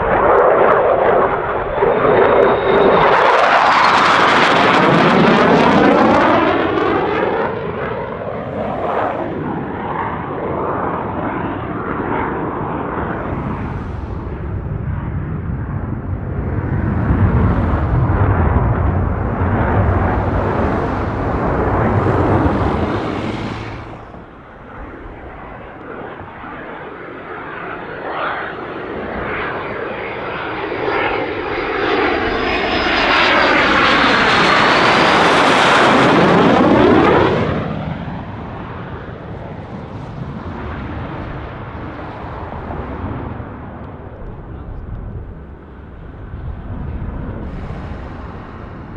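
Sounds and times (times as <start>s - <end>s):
jet aircraft passing overhead: 0.0s - 48.9s.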